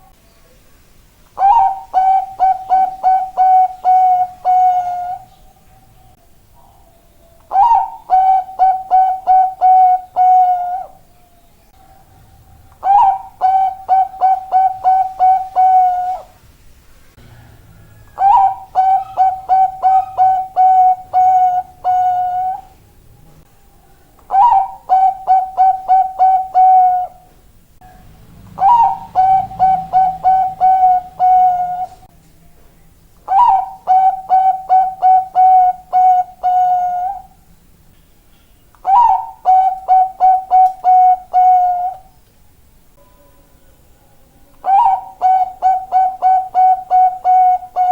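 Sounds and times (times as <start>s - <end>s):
dove cooing: 1.4s - 5.9s, 6.6s - 11.0s, 11.8s - 16.4s, 17.2s - 22.8s, 24.2s - 27.4s, 28.5s - 32.1s, 33.3s - 37.4s, 38.8s - 42.1s, 44.6s - 47.9s.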